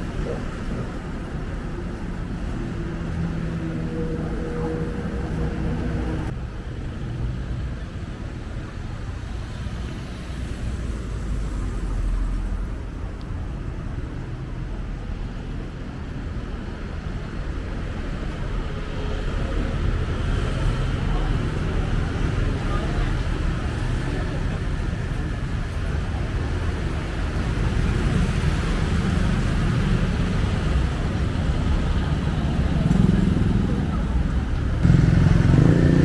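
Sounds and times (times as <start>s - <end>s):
engine hum: 0.0s - 8.1s, 17.8s - 36.0s
road traffic rumble: 0.0s - 36.0s.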